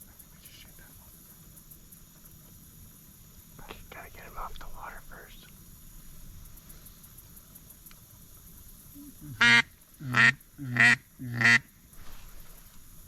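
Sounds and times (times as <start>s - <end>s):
duck call quacks: 9.3s - 11.7s.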